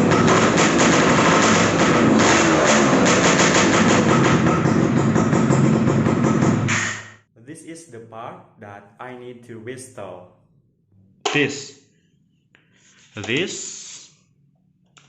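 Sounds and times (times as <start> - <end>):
motorcycle engine running loud: 0.0 - 6.8.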